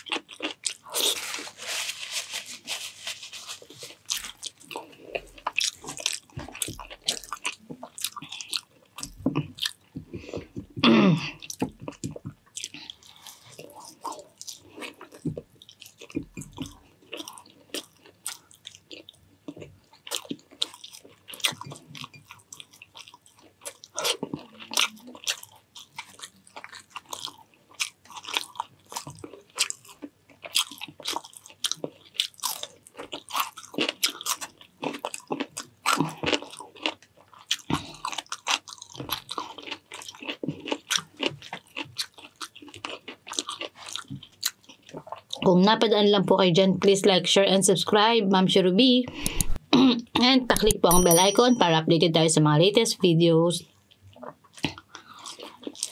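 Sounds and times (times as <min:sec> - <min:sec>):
person chewing and crunching: 0:00.0 - 0:45.5, 0:49.2 - 0:49.6, 0:53.7 - 0:55.9
mouth clicks and smacks: 0:49.2 - 0:49.7.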